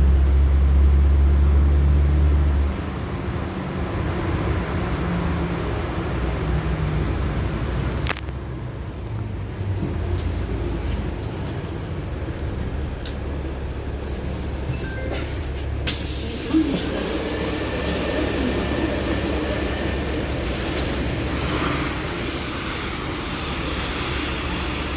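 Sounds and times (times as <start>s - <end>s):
bus engine rumble: 0.0s - 24.9s
compressed air hiss: 15.9s - 20.1s.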